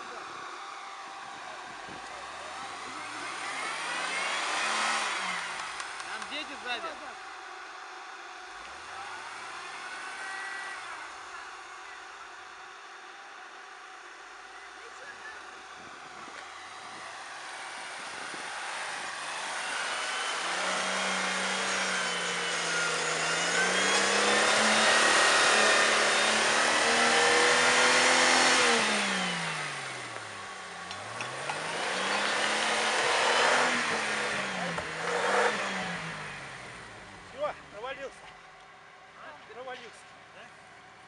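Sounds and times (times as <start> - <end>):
off-road vehicle engine revving: 0.0 - 41.0.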